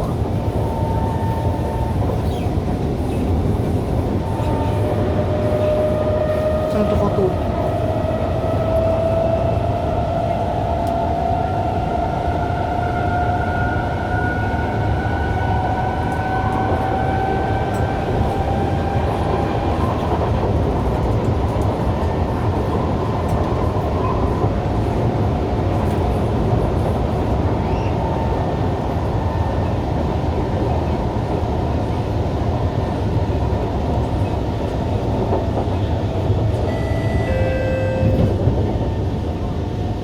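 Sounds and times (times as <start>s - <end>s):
train car rumble: 0.0s - 40.0s
train traction motors whining: 0.3s - 25.3s.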